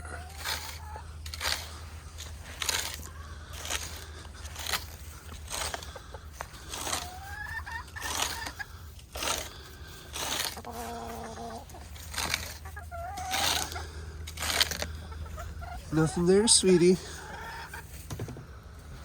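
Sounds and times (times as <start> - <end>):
birds scratching in sand: 0.0 - 19.0
hens clucking: 0.0 - 19.0.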